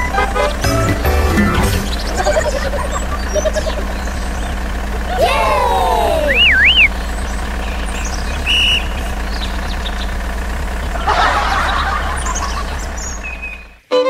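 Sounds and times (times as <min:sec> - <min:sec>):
small tractor engine running: 0:00.0 - 0:14.0
short warbling whistle: 0:06.2 - 0:07.0, 0:08.4 - 0:09.0.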